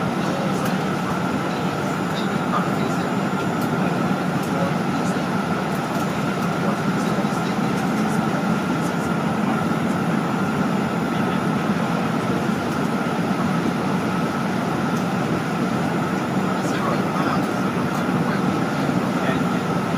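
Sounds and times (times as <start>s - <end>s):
jet cabin engine rumble: 0.0s - 19.9s.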